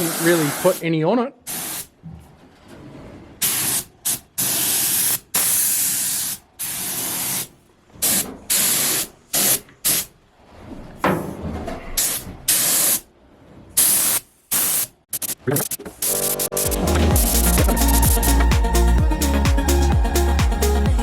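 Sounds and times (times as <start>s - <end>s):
paint spray gun hissing: 0.0s - 0.8s, 1.5s - 1.9s, 3.5s - 7.5s, 13.9s - 15.4s.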